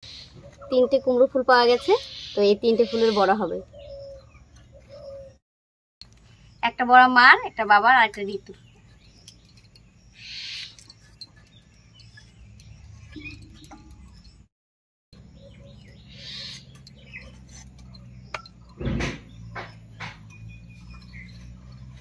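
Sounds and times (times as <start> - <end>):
dull thump: 18.8 - 20.3.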